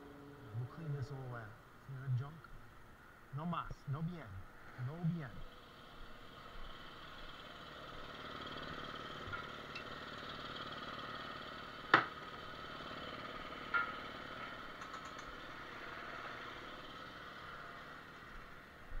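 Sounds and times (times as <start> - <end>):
motor humming: 5.4 - 19.0.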